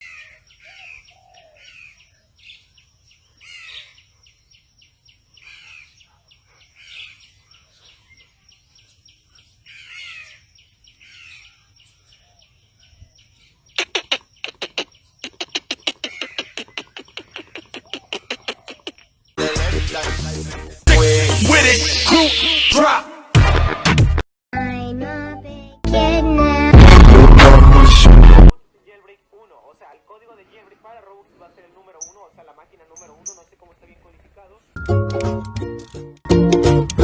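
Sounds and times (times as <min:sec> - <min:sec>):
birds chirping: 0:00.0 - 0:19.4, 0:30.2 - 0:34.7.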